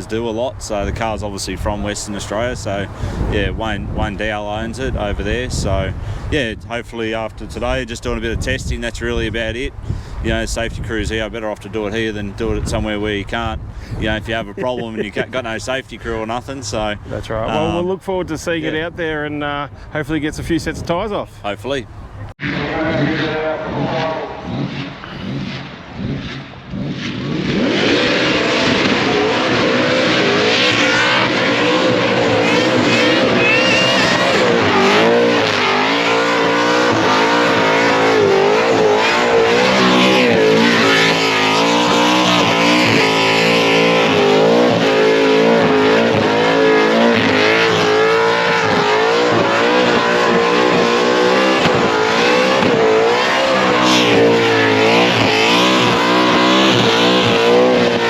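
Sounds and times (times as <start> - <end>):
supercharged car engine revving: 14.1 - 15.6, 22.4 - 58.0
spinning tyres: 22.5 - 58.0.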